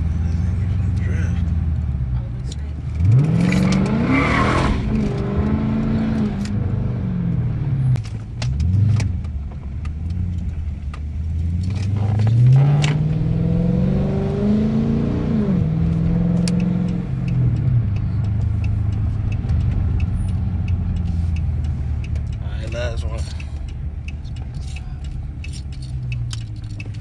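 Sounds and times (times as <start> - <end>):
car engine revving: 0.0 - 27.0
sharp clicks: 16.3 - 27.0.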